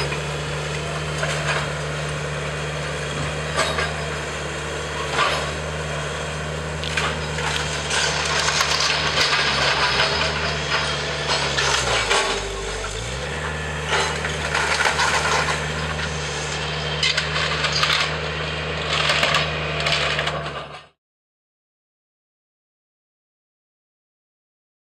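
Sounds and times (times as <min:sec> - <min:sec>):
demolition machine engine running: 0:00.0 - 0:21.0
wood cracking and splintering: 0:06.5 - 0:20.6.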